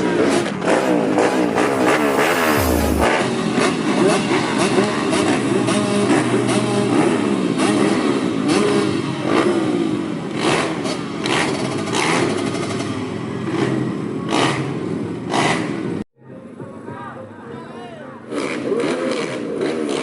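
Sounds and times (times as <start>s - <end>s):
motorcycles revving past: 0.2s - 14.7s.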